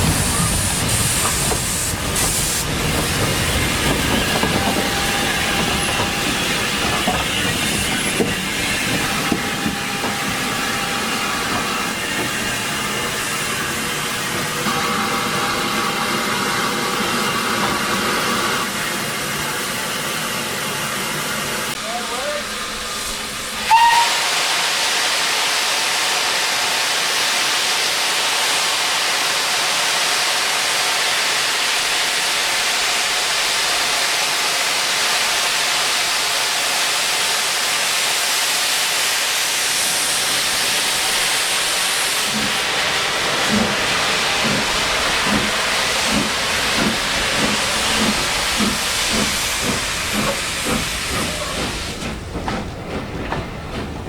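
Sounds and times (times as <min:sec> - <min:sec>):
steam hissing: 0:00.0 - 0:14.6, 0:21.1 - 0:53.6
steam locomotive whistle: 0:04.5 - 0:06.6, 0:23.6 - 0:28.7
locomotive exhaust beats: 0:43.4 - 0:54.0.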